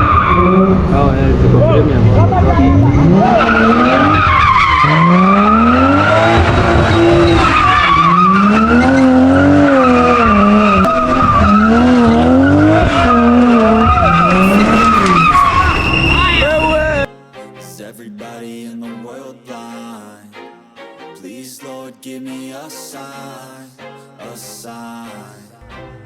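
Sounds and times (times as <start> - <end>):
car engine revving: 0.0 - 17.1
tyres squealing: 2.3 - 17.1.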